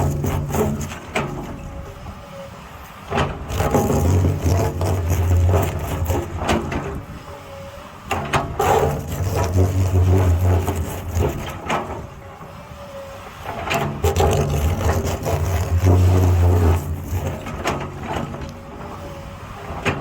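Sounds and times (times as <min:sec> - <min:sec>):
bucket knocking and scraping rock: 0:00.0 - 0:01.6, 0:03.2 - 0:07.0, 0:08.3 - 0:12.0, 0:13.6 - 0:18.6
excavator diesel engine: 0:00.0 - 0:20.0.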